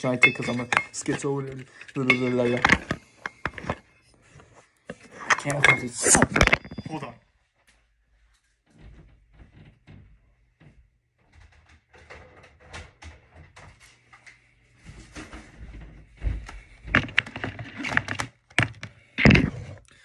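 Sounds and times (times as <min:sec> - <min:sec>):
objects being handled: 0:00.0 - 0:07.2, 0:13.6 - 0:19.9.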